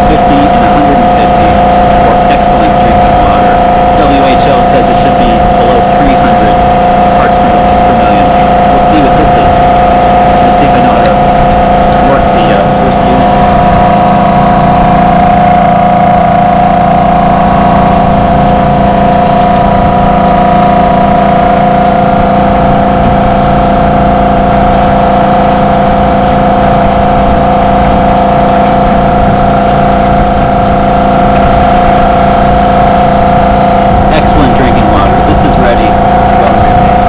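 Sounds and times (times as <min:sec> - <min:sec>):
electric motor and pump humming: 0:00.0 - 0:37.0.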